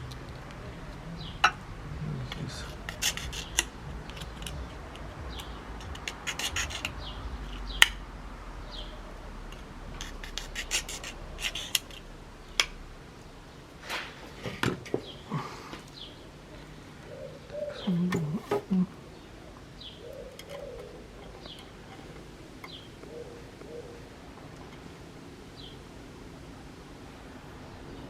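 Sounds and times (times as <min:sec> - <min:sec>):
hard plastic rubbing and scraping: 0:00.0 - 0:08.0, 0:08.7 - 0:12.8.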